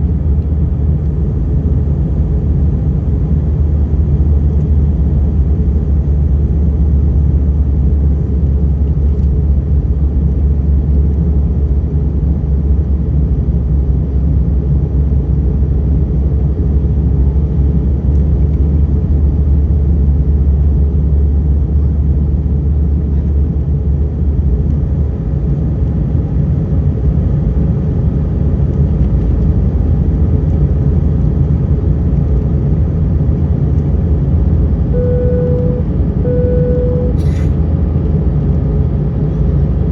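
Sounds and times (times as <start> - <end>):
airplane cabin engine rumble: 0.0 - 39.9
faint steady tone: 34.9 - 37.5.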